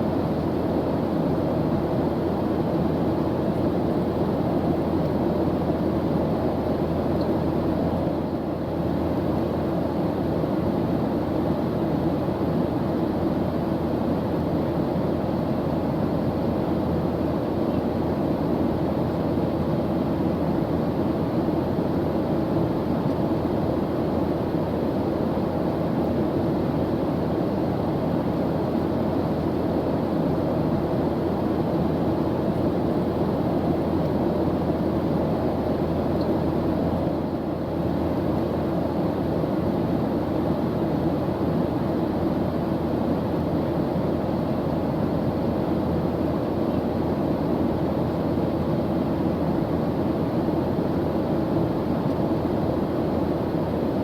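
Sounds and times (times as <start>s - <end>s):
airplane engine drone in cabin: 0.0s - 54.0s.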